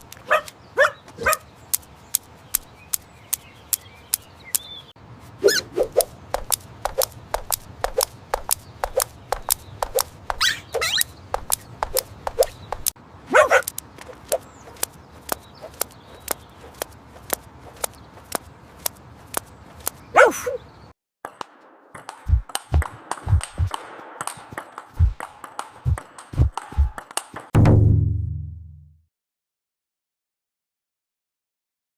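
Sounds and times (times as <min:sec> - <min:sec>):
sharp taps and clicks: 0:00.0 - 0:04.7, 0:06.0 - 0:13.0, 0:13.6 - 0:20.0, 0:21.3 - 0:27.5
dog barking: 0:00.2 - 0:01.5, 0:10.4 - 0:11.0, 0:13.3 - 0:13.7, 0:20.1 - 0:20.6
low thuds: 0:27.6 - 0:28.7.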